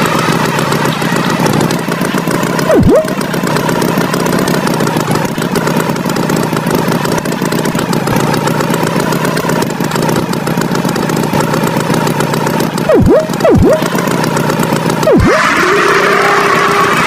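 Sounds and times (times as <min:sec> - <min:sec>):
cartoon tractor engine running: 0:00.0 - 0:17.0
swooping sound: 0:02.6 - 0:03.3, 0:12.9 - 0:14.1, 0:15.0 - 0:15.4.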